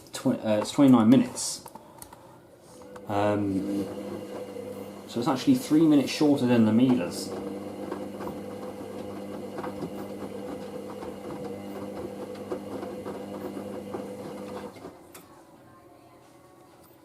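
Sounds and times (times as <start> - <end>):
washing machine motor hum: 2.8 - 15.1.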